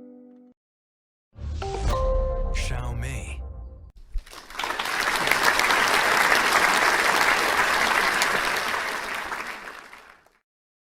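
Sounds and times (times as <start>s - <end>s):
applause: 4.0s - 10.4s.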